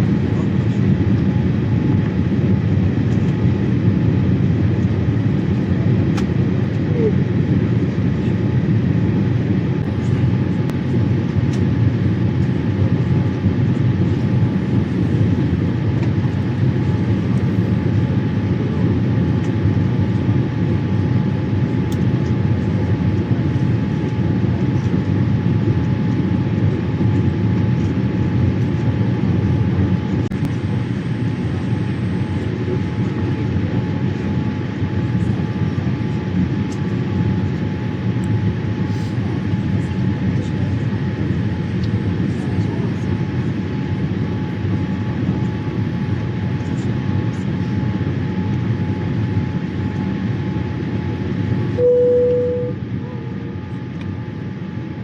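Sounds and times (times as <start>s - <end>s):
airliner cabin noise: 0.0s - 55.0s
faint steady hum: 51.6s - 54.1s.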